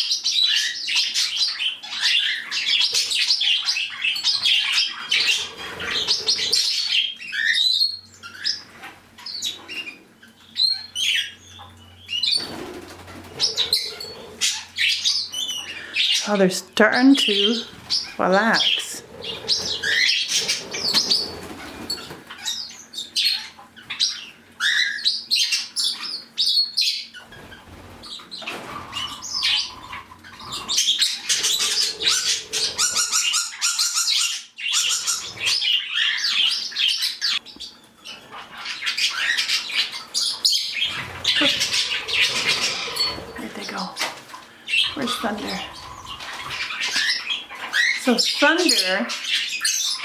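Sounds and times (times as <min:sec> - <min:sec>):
parrots chirping and squawking: 0:00.0 - 0:50.0
wings flapping: 0:12.2 - 0:14.5, 0:19.0 - 0:22.4, 0:27.2 - 0:33.2.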